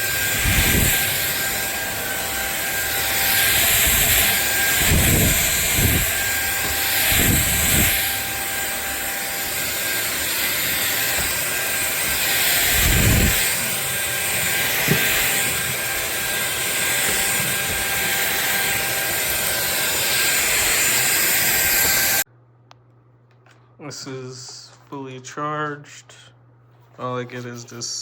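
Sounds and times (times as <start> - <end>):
vacuum cleaner motor whine: 0.0 - 22.3.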